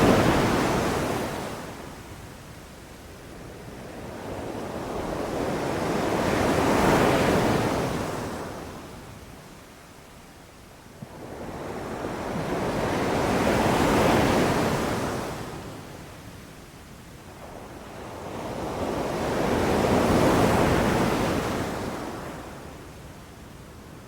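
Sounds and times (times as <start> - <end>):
ocean waves breaking on beach: 0.0 - 1.8.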